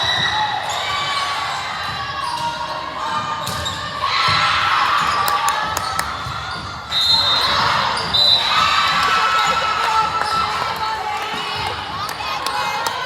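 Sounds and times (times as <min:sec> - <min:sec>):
spectators chattering: 0:08.4 - 0:13.0.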